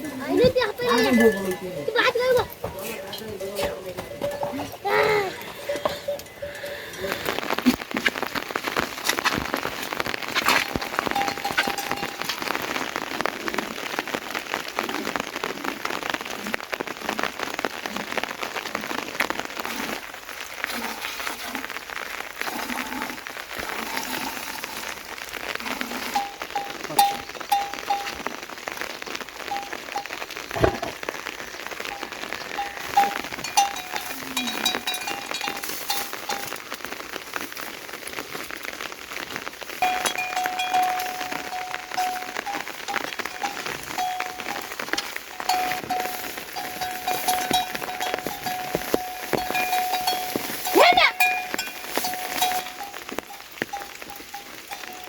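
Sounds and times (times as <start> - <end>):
rain falling: 0.0 - 55.0
louder drips or knocks: 29.6 - 31.2.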